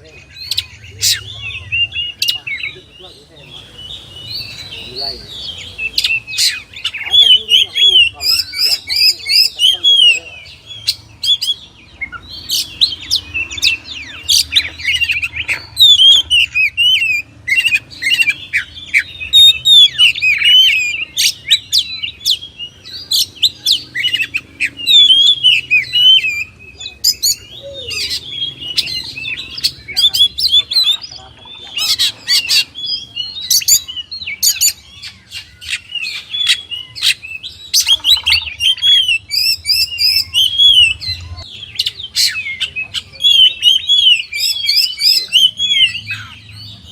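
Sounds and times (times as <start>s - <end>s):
bird singing chirps and whistles: 0.0s - 46.9s.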